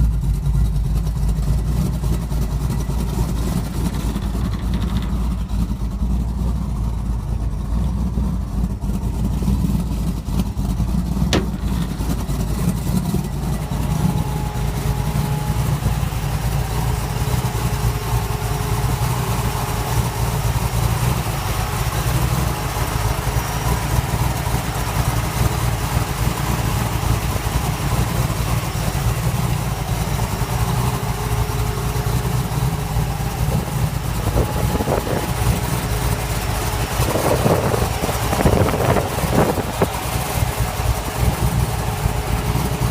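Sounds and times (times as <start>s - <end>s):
truck engine running: 0.0s - 42.9s.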